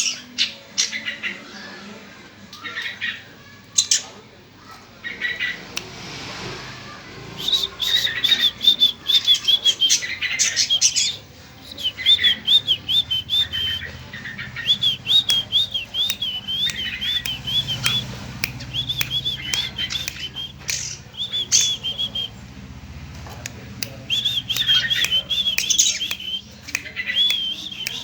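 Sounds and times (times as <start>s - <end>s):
bird rapid high chirps: 7.3s - 22.4s, 23.9s - 28.0s
sharp clicks: 14.8s - 22.3s, 23.2s - 28.0s.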